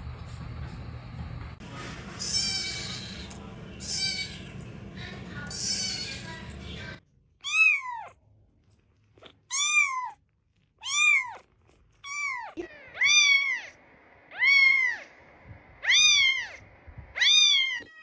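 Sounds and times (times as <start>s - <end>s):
cat meowing: 3.8s - 4.4s, 7.4s - 8.2s, 9.5s - 10.2s, 10.8s - 15.1s, 15.8s - 18.0s.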